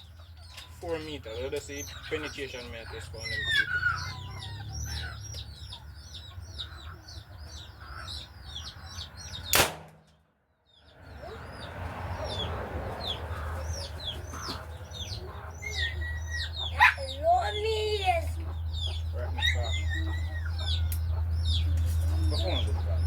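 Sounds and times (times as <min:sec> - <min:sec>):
birds chirping: 0:00.0 - 0:23.0
sharp crack: 0:09.5 - 0:10.2.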